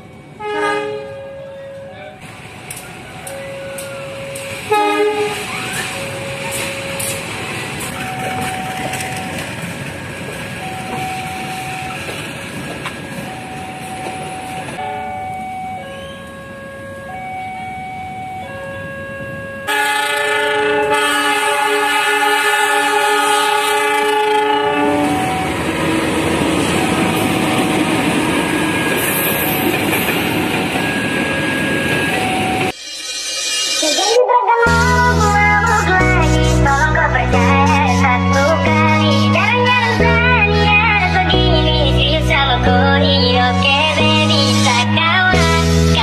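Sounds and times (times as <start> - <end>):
two-tone crossing alarm: 0.0 - 34.1
train rumbling past: 0.0 - 46.0
locomotive horn blasts: 0.4 - 2.0, 3.4 - 7.2, 19.6 - 26.2.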